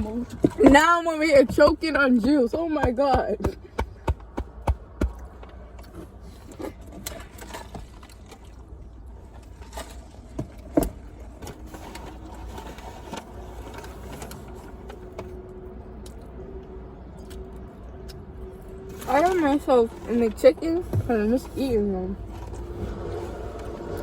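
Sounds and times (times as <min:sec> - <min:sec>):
car cabin rumble: 0:00.0 - 0:05.4, 0:18.9 - 0:24.0.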